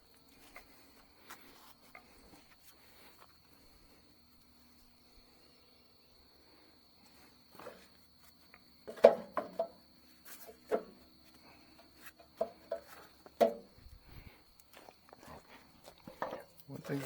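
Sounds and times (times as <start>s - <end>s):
crickets trilling: 0.0s - 17.0s
sharp knocks and clatters: 8.9s - 9.8s, 12.2s - 13.8s, 16.0s - 17.0s.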